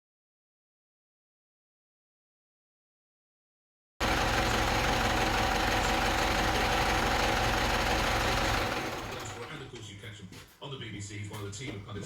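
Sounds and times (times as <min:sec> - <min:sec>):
car engine idling: 0:04.0 - 0:09.7.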